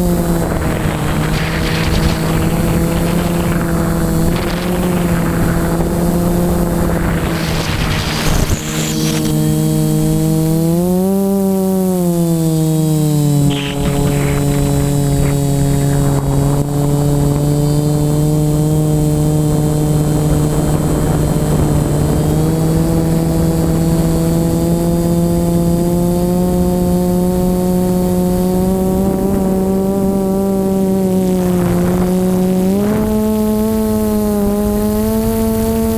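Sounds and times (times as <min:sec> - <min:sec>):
model aircraft propeller drone: 0:00.0 - 0:35.9
wind rushing over microphone: 0:00.0 - 0:35.9.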